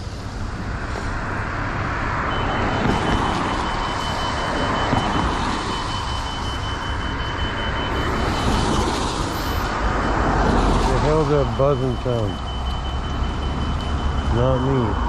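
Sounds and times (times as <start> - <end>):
road and traffic noise: 0.0 - 15.0
high-pitched electronic buzz: 2.1 - 15.0.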